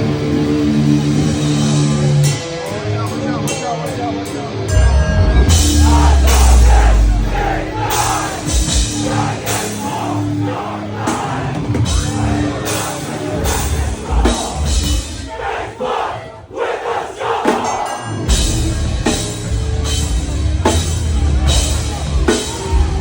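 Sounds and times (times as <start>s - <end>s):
live heavy rock band: 0.0s - 23.0s
rock vocals: 0.0s - 23.0s
pounding drums: 4.8s - 23.0s.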